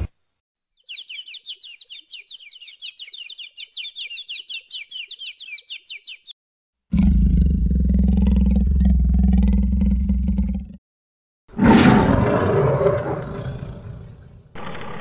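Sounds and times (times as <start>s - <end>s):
bird trill of high chirps: 0.7s - 6.4s.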